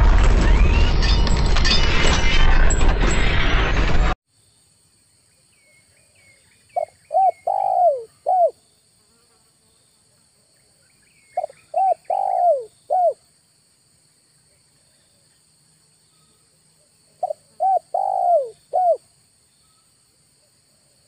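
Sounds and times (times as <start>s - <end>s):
high insect drone: 4.3s - 21.0s
faint high bird chirps: 5.3s - 8.8s, 10.6s - 13.2s, 16.0s - 20.0s
dove cooing: 6.8s - 8.6s, 11.4s - 13.2s, 17.2s - 19.0s.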